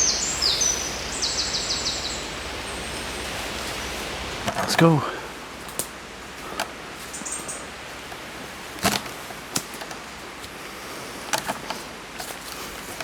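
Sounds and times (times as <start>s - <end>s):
wind through trees: 0.0s - 13.0s
knocks and rustles of gear: 8.0s - 13.0s.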